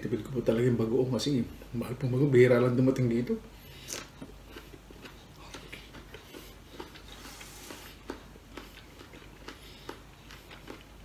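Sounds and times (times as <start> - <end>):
person chewing mango: 2.6 - 11.0.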